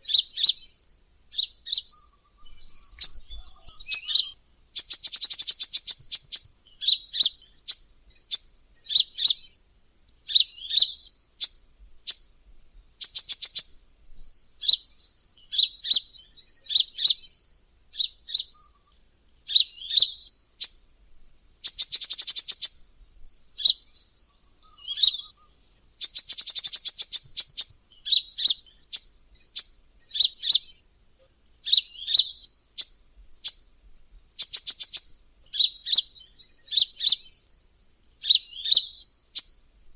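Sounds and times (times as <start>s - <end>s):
bird rapid trills: 0.0s - 9.5s, 10.3s - 14.9s, 21.6s - 30.8s, 34.3s - 37.4s
sunbird high chirps: 0.0s - 39.9s.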